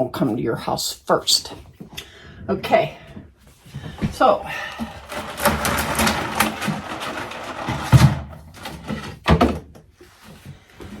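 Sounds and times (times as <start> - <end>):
jars rustling and clattering: 3.5 - 11.0.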